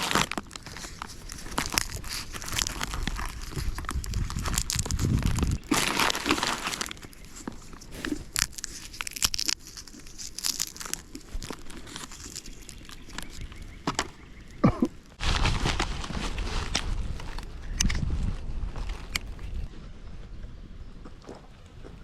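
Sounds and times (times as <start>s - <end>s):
plastic snack bag crinkling: 0.0s - 13.7s.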